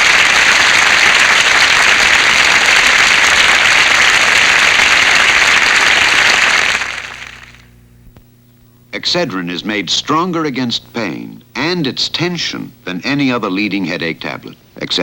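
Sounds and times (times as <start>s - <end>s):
audience applauding and cheering: 0.0s - 7.7s.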